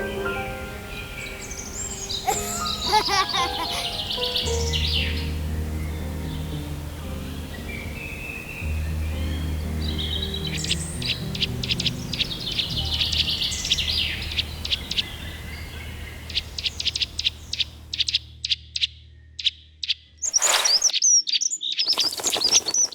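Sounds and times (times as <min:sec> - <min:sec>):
songbirds chirping: 0:00.0 - 0:22.9
low music drone: 0:03.9 - 0:14.7.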